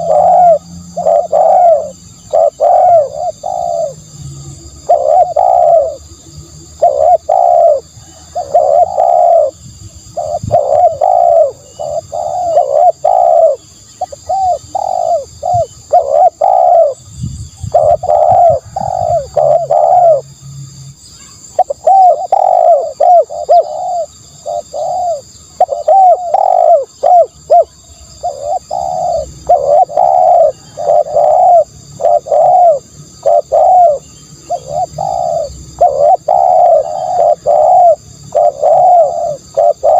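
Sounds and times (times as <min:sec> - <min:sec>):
dove cooing: 0:00.0 - 0:20.3, 0:21.4 - 0:39.9.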